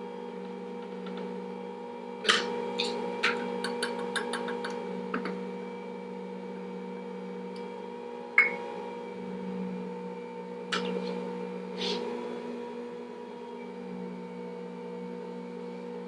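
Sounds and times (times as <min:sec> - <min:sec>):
stand mixer humming: 0:00.0 - 0:16.0.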